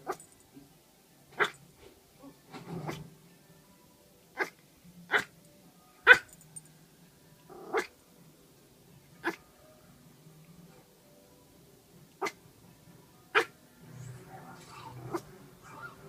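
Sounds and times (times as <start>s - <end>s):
dog barking: 1.4s - 1.6s, 4.4s - 5.3s, 6.1s - 6.3s, 14.7s - 16.0s
dog growling: 7.5s - 7.9s, 14.3s - 16.0s.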